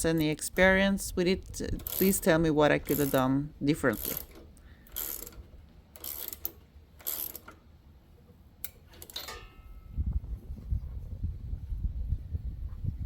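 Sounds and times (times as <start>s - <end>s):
ratchet wrench clicking: 1.8s - 2.2s, 2.9s - 3.2s, 3.9s - 7.6s
metal clicks with ringing: 8.6s - 9.9s
low rumble: 9.7s - 13.0s.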